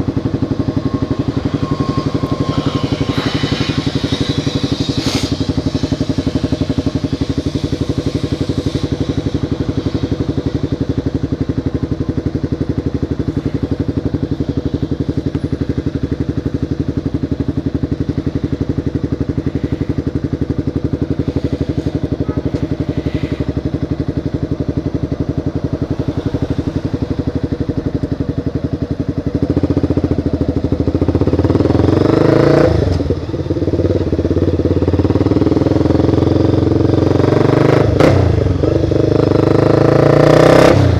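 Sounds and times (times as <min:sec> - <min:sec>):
motorcycle engine idling: 0:00.0 - 0:40.9
motorcycle revving and pulling away: 0:00.0 - 0:40.9.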